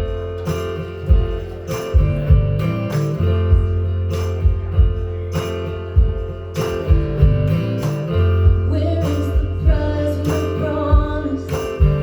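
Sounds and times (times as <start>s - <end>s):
guitar strumming: 0.0s - 12.0s
low bass notes: 2.0s - 10.3s.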